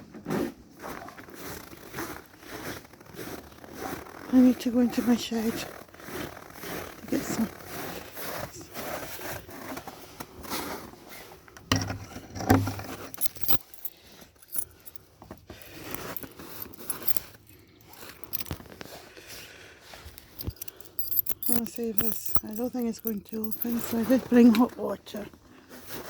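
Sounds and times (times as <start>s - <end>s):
keys jangling at a lock: 11.7s - 18.9s, 20.0s - 25.3s.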